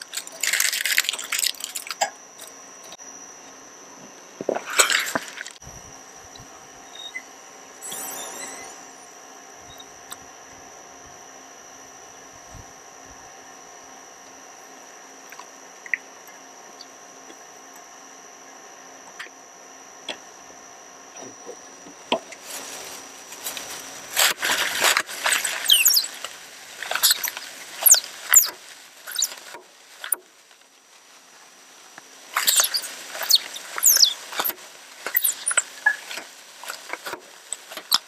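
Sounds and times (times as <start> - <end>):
plastic cracking and squealing: 0.0 - 2.1, 4.5 - 5.6, 22.3 - 38.0
shredder motor humming: 0.0 - 38.0.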